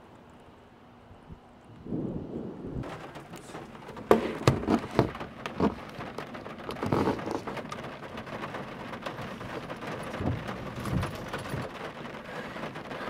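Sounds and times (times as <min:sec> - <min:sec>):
rain on car windshield and roof: 0:02.8 - 0:13.0
loud knocks: 0:10.0 - 0:11.7.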